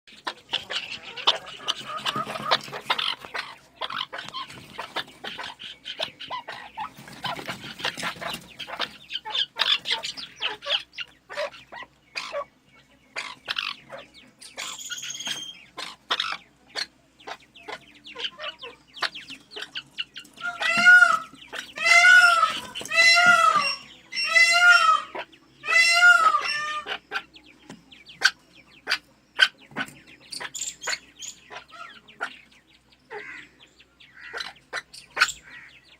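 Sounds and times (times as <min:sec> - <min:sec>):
birds clucking and chirping: 0:00.1 - 0:35.9
loud rising and falling bird calls: 0:17.8 - 0:27.2.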